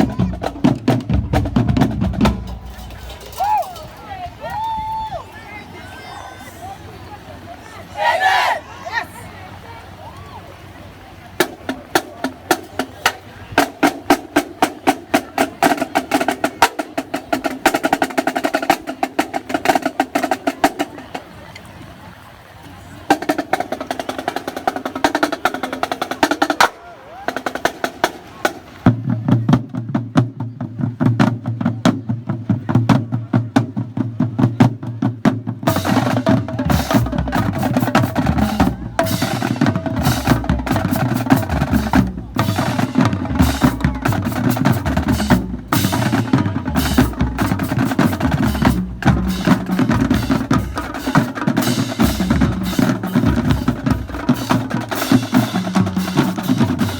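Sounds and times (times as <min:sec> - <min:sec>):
bass drums: 0:00.0 - 0:04.0, 0:29.0 - 0:56.9
snare drums: 0:00.0 - 0:04.7, 0:11.4 - 0:21.2, 0:23.1 - 0:56.9
tenor drums: 0:00.0 - 0:05.0, 0:11.4 - 0:21.3, 0:23.1 - 0:56.9
cymbals: 0:02.2 - 0:04.1, 0:35.7 - 0:56.9.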